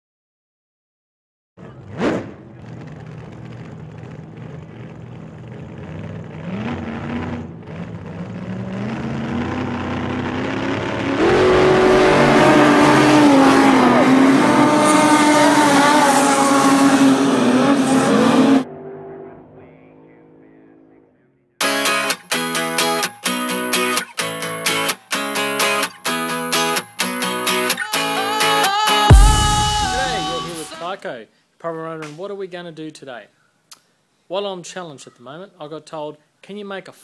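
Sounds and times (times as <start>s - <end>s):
race car engine accelerating: 1.6s - 21.0s.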